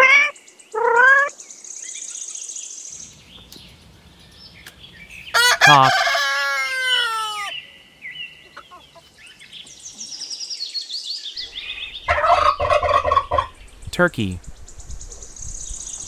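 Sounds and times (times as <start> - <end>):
rooster crowing: 5.3 - 7.6
turkey gobbling: 5.4 - 7.5, 12.1 - 13.6.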